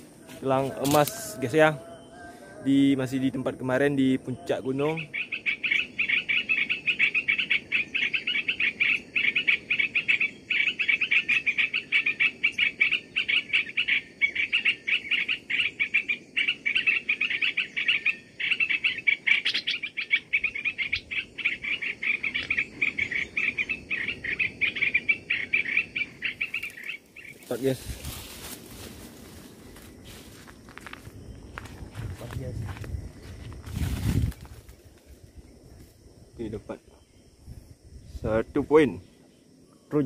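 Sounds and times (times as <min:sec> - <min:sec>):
birds chirping rapidly: 0:04.3 - 0:28.4.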